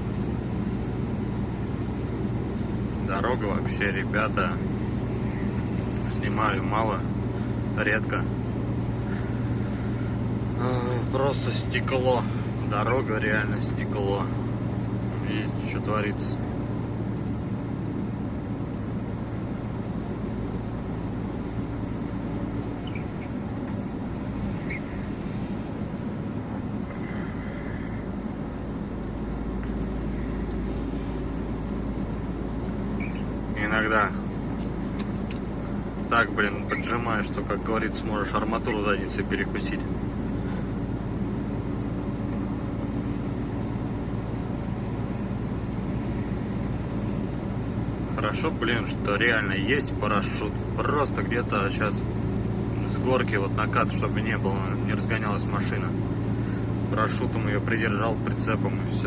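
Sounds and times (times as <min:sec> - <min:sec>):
road noise: 0:00.0 - 0:59.0
truck engine droning: 0:00.0 - 0:59.0
faint squeaks in cab: 0:22.6 - 0:23.4, 0:24.5 - 0:25.2, 0:32.9 - 0:33.4, 0:36.5 - 0:37.1.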